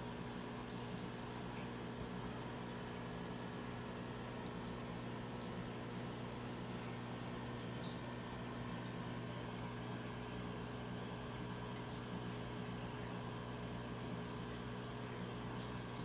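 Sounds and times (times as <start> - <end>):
aquarium equipment humming: 0.0 - 16.0.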